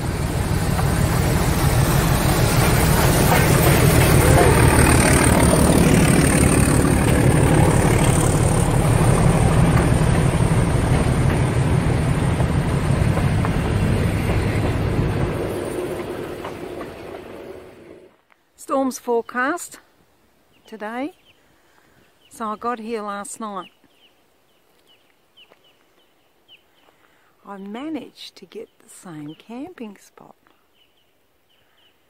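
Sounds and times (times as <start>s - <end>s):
train carriages rumbling past: 0.0s - 18.2s.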